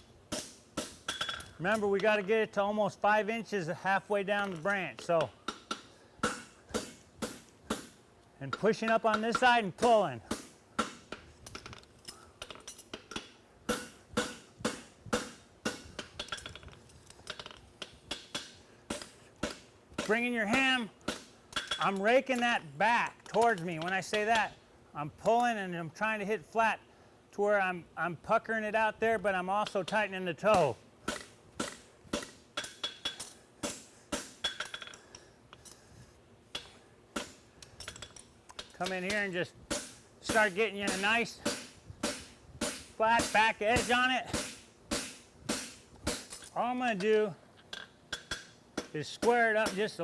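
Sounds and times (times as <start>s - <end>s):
hammer striking horseshoe on anvil: 0.3s - 2.0s, 4.4s - 11.3s, 12.4s - 16.6s, 17.8s - 22.5s, 29.6s - 35.2s, 36.5s - 50.0s.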